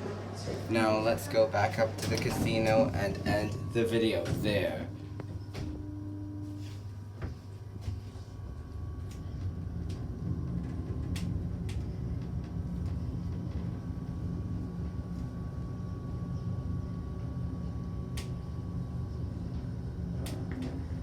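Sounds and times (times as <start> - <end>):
elevator car low hum: 0.0 - 21.0
faint steady high tone: 2.4 - 5.8.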